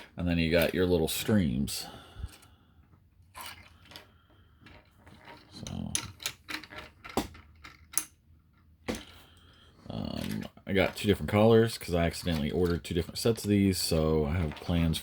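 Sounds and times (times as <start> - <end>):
plastic parts rubbing: 2.2 - 15.0
plastic parts clicking: 3.8 - 9.2.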